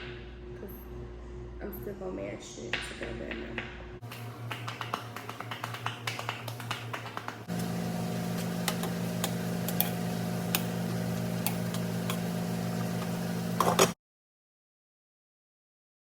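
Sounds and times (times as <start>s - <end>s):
low electric hum: 0.0s - 14.0s
utensil clicking against a bowl: 4.0s - 7.4s, 8.6s - 10.8s, 11.4s - 12.3s.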